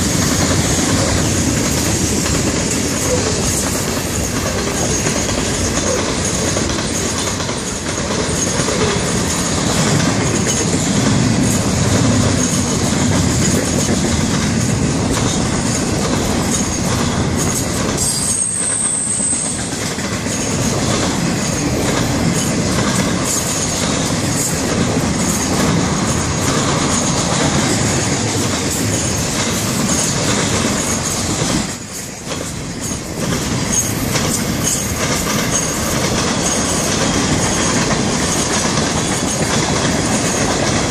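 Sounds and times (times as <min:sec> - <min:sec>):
train wheels rolling on rails: 0:00.0 - 0:40.9
high-pitched wheel squeal: 0:18.0 - 0:19.7.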